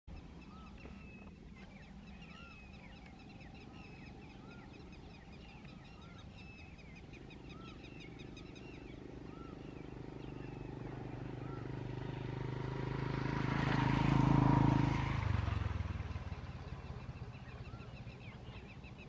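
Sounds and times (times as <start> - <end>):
small birds chirping: 0.1 - 19.0.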